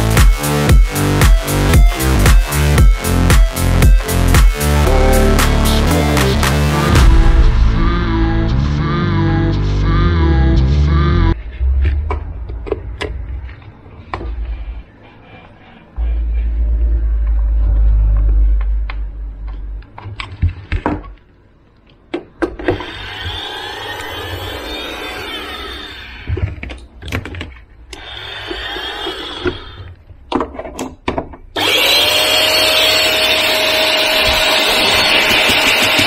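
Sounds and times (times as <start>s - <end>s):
vacuum motor whining: 31.6s - 36.0s.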